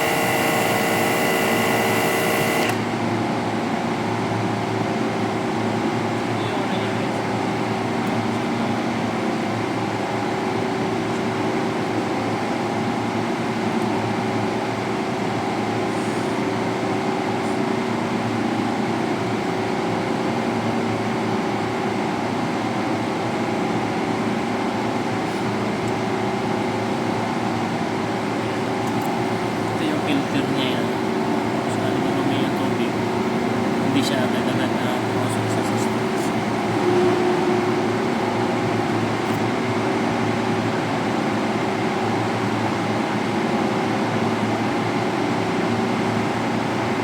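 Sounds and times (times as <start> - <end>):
pressure washer running: 0.0 - 3.3, 28.2 - 41.1.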